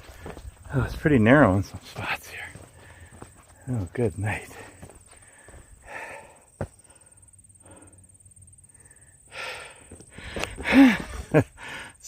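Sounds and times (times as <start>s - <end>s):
person breathing: 2.4s - 3.4s, 4.5s - 12.0s.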